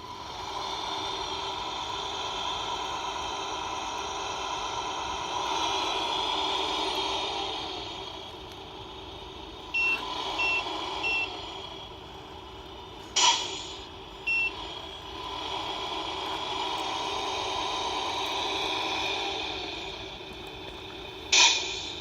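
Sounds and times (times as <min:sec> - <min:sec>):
simulated diesel engine running: 0:00.0 - 0:22.0
reversing beeps: 0:09.8 - 0:11.3, 0:14.3 - 0:14.6
air brake hiss: 0:13.1 - 0:13.9, 0:21.3 - 0:22.0.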